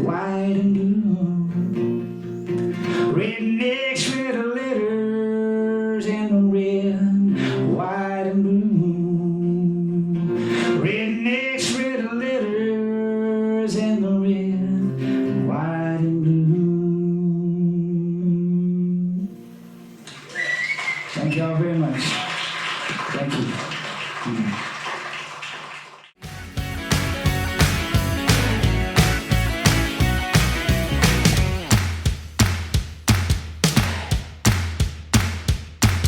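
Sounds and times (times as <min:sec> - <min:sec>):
man singing: 0:00.0 - 0:02.1, 0:03.0 - 0:19.3
acoustic guitar: 0:00.0 - 0:21.6, 0:26.2 - 0:31.8.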